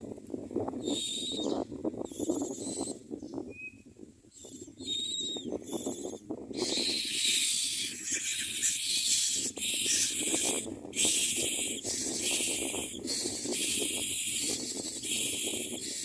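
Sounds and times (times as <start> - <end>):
nestlings begging with raspy calls: 5.3 - 16.0.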